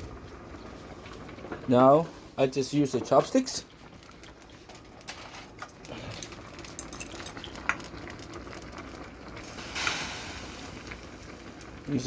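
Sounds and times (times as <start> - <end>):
short hiss: 9.6 - 10.8.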